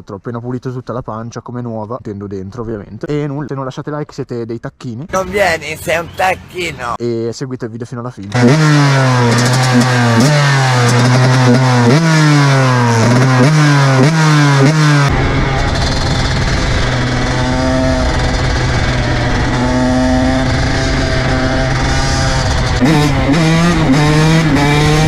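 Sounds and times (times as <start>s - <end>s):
motocross engine accelerating: 8.3s - 25.0s
wind noise rumble: 15.0s - 25.0s.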